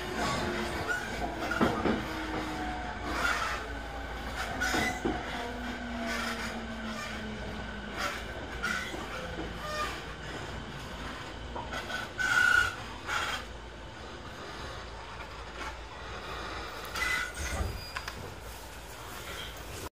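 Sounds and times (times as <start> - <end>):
train interior low rumble: 0.0 - 19.9
short high squeals: 16.9 - 18.2.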